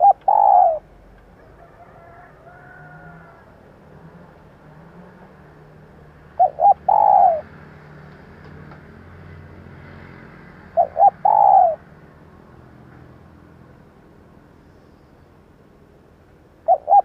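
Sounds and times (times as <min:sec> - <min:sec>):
dove cooing: 0:00.0 - 0:04.2, 0:06.2 - 0:07.6, 0:10.6 - 0:11.9, 0:16.6 - 0:17.0.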